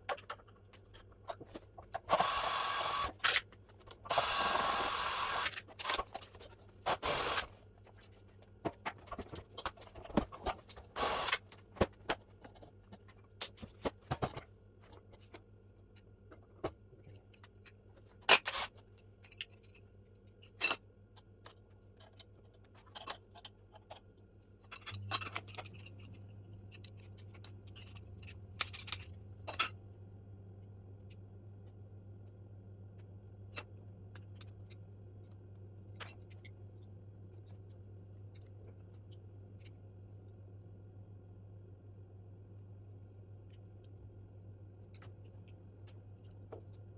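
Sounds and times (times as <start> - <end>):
low steady hum: 18.8 - 46.9.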